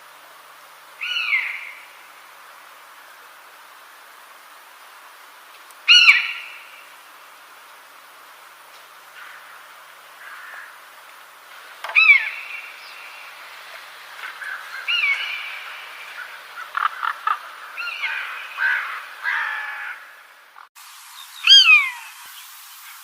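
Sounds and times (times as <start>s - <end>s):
faint steady hiss: 0.0s - 23.0s
birds calling: 1.0s - 2.2s, 5.7s - 7.0s, 9.0s - 23.0s.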